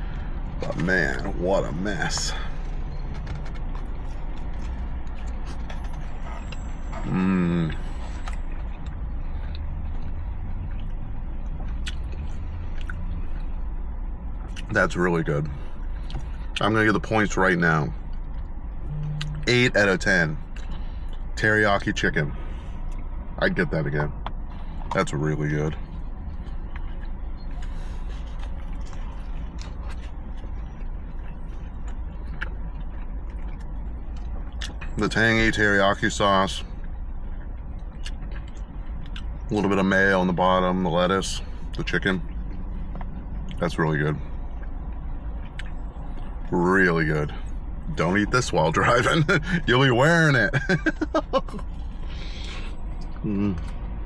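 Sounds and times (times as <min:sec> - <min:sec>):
car rumble: 0:00.0 - 0:54.0
man humming mmm: 0:07.0 - 0:07.8, 0:53.2 - 0:53.7.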